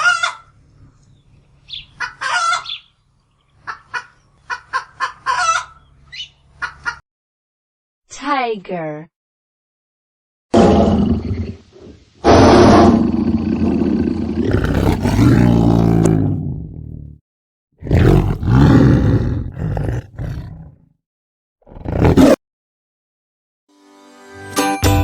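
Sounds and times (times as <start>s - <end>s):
tiger roaring: 12.2s - 17.2s, 17.8s - 20.8s, 21.7s - 22.4s.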